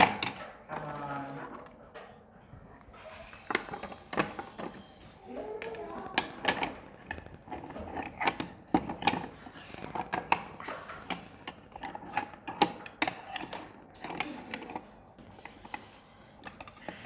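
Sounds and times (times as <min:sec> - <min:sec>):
plastic toy utensils clattering: 0:03.5 - 0:17.0.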